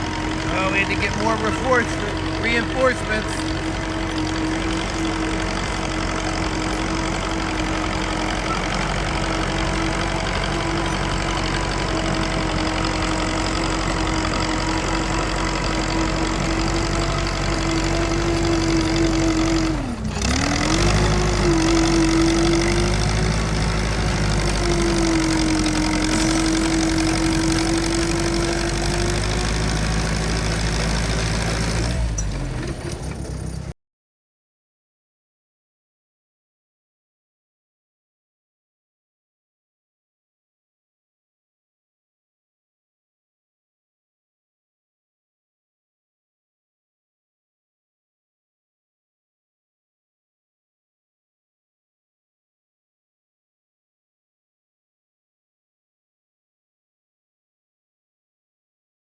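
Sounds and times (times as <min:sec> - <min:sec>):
engine humming: 0:00.0 - 0:33.7.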